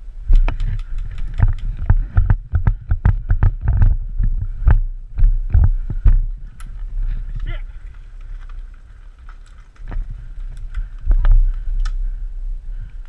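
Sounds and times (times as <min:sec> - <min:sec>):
thumping on microphone: 0:01.4 - 0:06.3.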